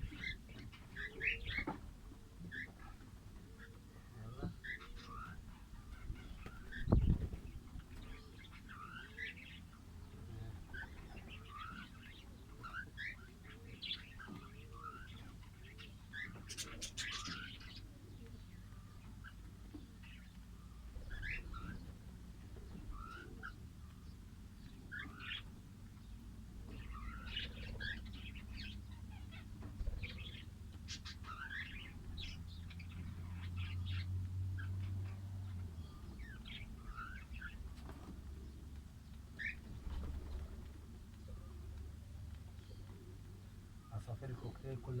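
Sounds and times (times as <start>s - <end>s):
parrots chirping and squeaking: 16.1s - 17.6s.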